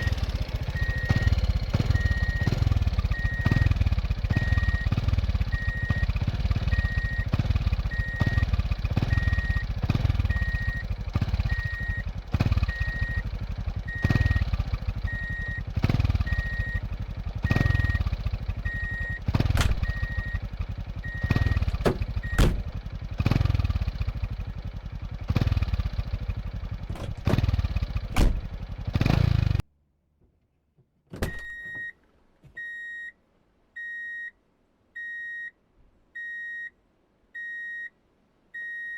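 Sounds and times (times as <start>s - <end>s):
reversing alarm beeping: 0.0s - 8.4s, 9.0s - 15.6s, 16.2s - 22.6s
construction machine engine running: 0.0s - 29.6s
sharp knocks: 21.5s - 22.8s, 26.9s - 28.5s.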